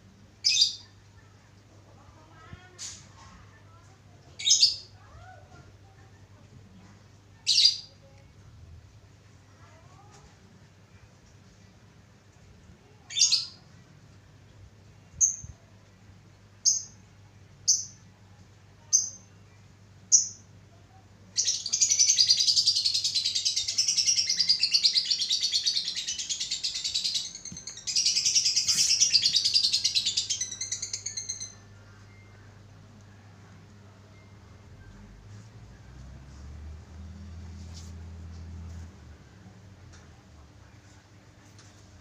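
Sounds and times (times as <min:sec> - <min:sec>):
lovebird chirps: 0:21.4 - 0:32.6
lovebird chattering trill: 0:21.7 - 0:31.6.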